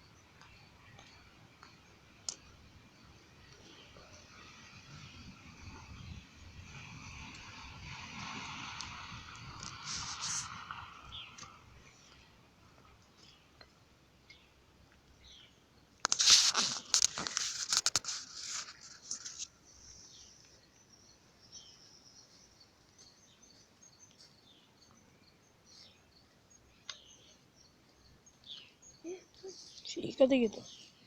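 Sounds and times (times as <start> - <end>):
sparrows chirping: 11.0 - 12.2, 15.2 - 15.8, 19.2 - 31.0
loud rustling and crackling: 16.0 - 19.5.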